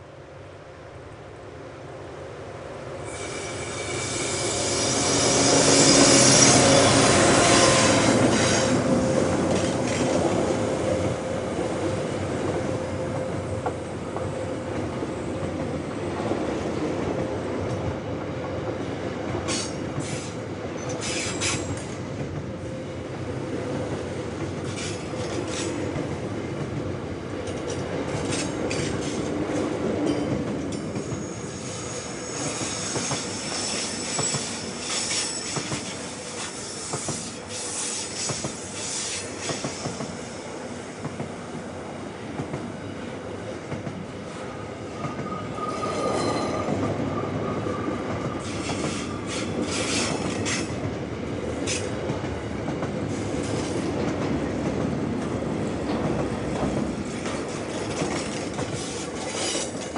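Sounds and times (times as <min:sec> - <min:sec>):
train wheels rumbling on rails: 0:02.9 - 0:59.9
high thin wheel squeal: 0:03.1 - 0:08.7, 0:31.0 - 0:39.2, 0:45.3 - 0:46.7.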